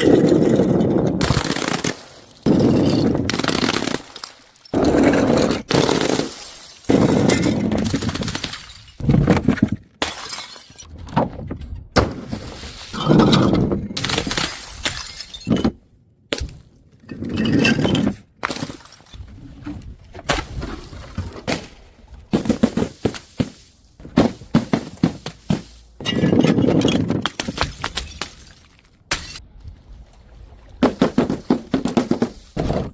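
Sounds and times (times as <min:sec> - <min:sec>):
glass bottles smashing: 0:00.0 - 0:09.1, 0:10.0 - 0:10.9, 0:12.4 - 0:15.8, 0:24.2 - 0:29.4.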